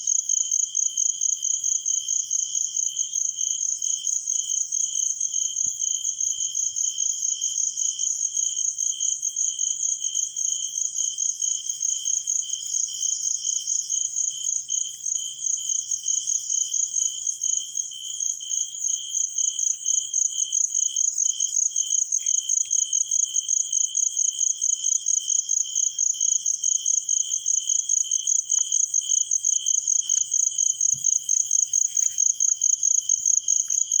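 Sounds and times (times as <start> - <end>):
insects chirping: 10.4 - 34.0.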